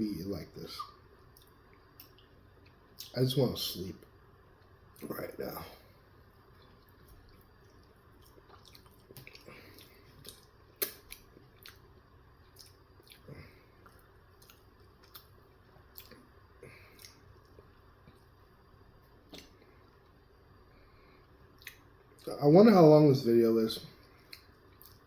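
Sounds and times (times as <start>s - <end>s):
soft wet chewing: 0.8s - 3.1s, 5.7s - 22.3s, 23.9s - 25.0s.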